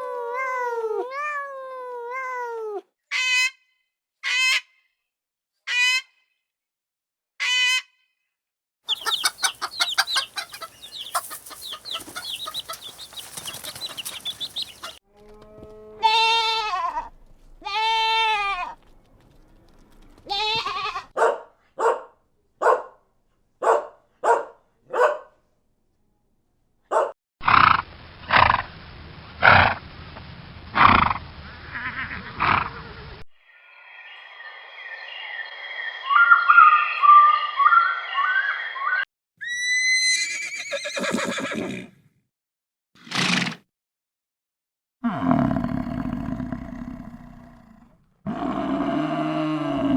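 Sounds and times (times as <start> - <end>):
chattering animal calls: 8.9 - 15.0
high wavering animal calls: 8.9 - 15.0, 34.8 - 41.5
short animal calls: 8.9 - 15.0.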